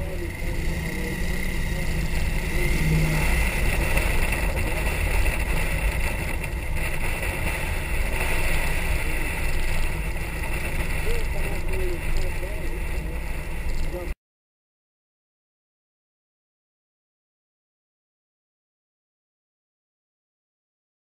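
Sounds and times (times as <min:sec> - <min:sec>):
car engine running: 0:00.0 - 0:14.1.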